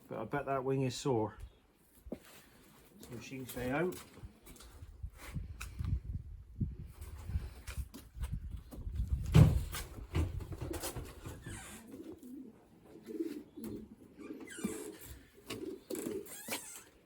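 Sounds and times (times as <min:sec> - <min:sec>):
pigeons cooing: 0:10.5 - 0:17.0.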